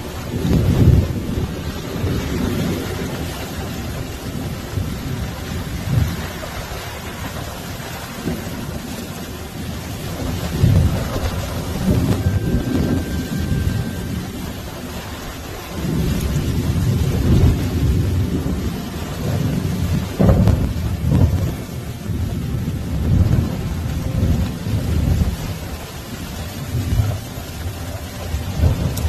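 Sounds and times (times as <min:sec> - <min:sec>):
deep thunder rumble: 0:00.0 - 0:29.0
rain hissing: 0:00.0 - 0:29.0.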